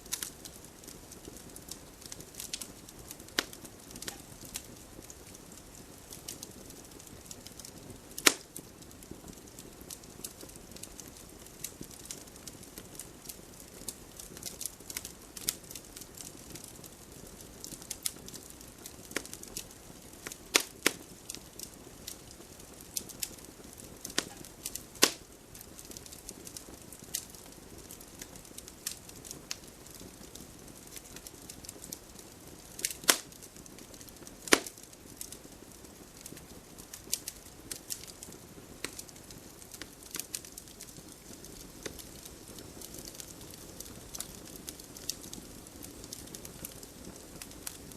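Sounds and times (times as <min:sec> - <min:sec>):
loud pops from fire: 0:00.0 - 0:47.9
wood fire crackling: 0:00.0 - 0:47.9
hiss of flame: 0:20.2 - 0:47.9.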